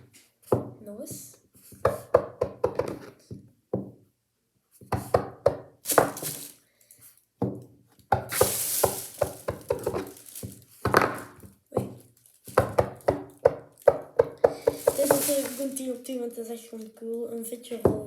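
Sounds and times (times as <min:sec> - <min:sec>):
fidget toy rattling rush: 0:14.7 - 0:16.3.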